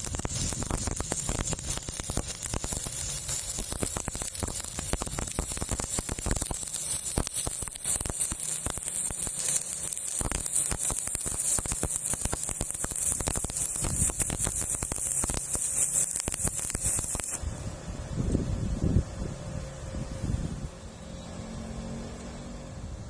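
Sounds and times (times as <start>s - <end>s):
welding arc crackling: 0.0s - 17.6s.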